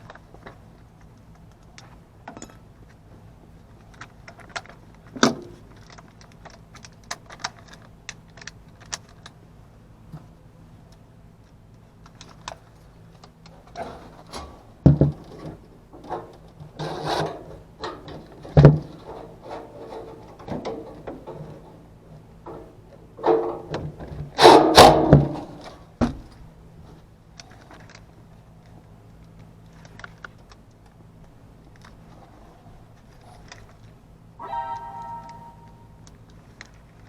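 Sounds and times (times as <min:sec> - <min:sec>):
objects knocking and rattling: 0:13.6 - 0:26.3
faint low hum: 0:25.2 - 0:37.0.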